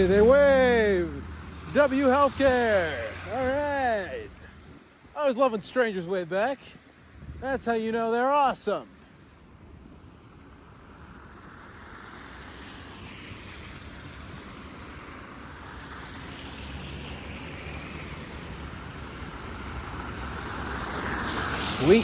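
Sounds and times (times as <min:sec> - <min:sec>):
tyre hiss on wet street: 0:00.0 - 0:22.0
wind rumble on microphone: 0:07.0 - 0:07.8.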